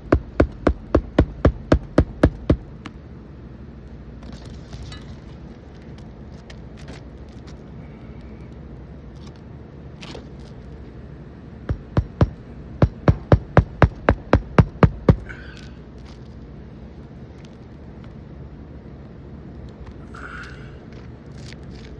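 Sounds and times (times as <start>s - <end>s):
hammer driving nails: 0.1s - 2.9s, 11.7s - 15.4s.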